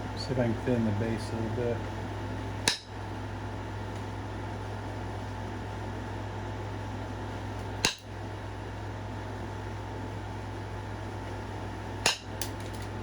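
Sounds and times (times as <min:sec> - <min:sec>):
fan humming: 0:00.0 - 0:13.0
stone knapping strikes: 0:02.6 - 0:03.0, 0:07.8 - 0:08.1, 0:12.0 - 0:12.8.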